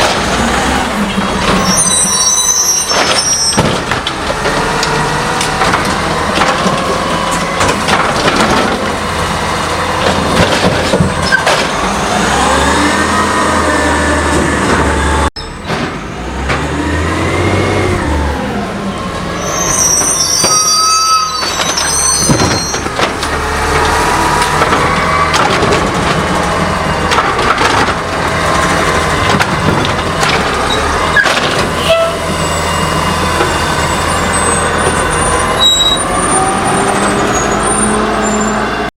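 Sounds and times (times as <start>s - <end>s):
garbage truck engine running: 0.0s - 38.9s
hydraulics whining: 0.0s - 38.9s
high squeals: 1.4s - 3.6s, 19.4s - 23.0s, 30.6s - 38.9s.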